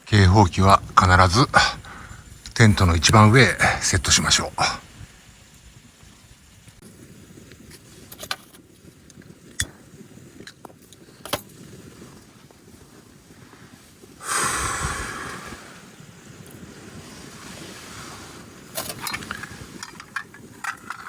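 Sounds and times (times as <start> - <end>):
loud rushing hiss: 0.0 - 7.3, 13.6 - 19.8
camping gear clicks and knocks: 7.6 - 9.8, 10.4 - 11.6, 18.7 - 21.0.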